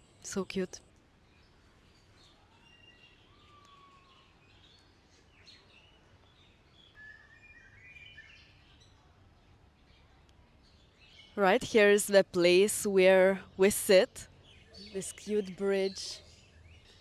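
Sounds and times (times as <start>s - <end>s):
low steady background hiss: 9.3s - 16.7s.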